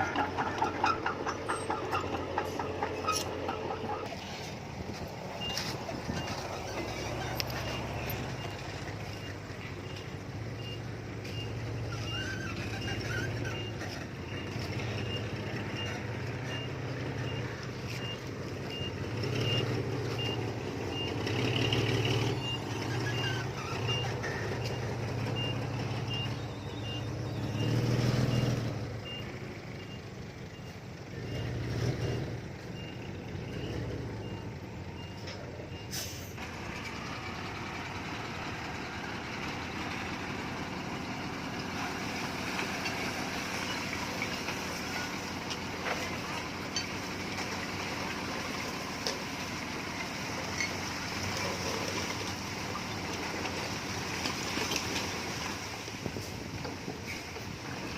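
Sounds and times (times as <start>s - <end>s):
diesel engine revving: 0.0s - 57.9s
reversing alarm beeping: 21.9s - 31.5s.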